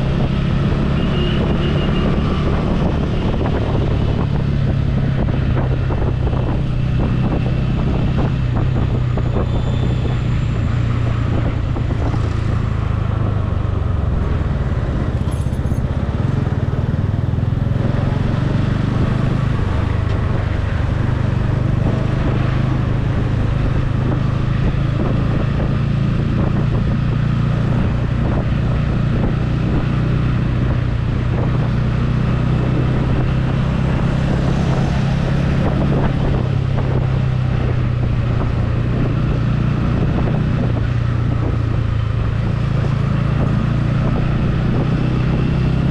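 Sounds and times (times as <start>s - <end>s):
road and traffic noise: 0.0s - 45.9s
motorcycle engine running: 10.6s - 45.9s.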